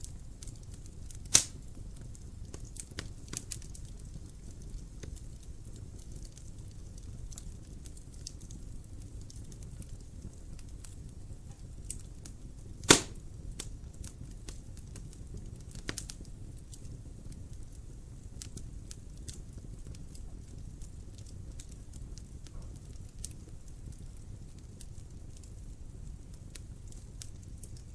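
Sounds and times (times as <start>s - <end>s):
wood fire crackling: 0.0s - 27.9s
loud pop from fire: 1.2s - 1.7s, 12.8s - 13.7s, 22.4s - 23.3s.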